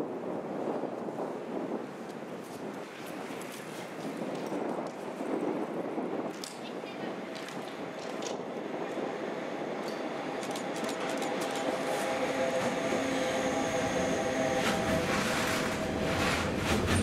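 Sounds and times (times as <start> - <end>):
rail rumble: 0.1 - 17.0
electric locomotive whine: 7.1 - 17.0
wheels clattering over rail joints: 14.5 - 17.0.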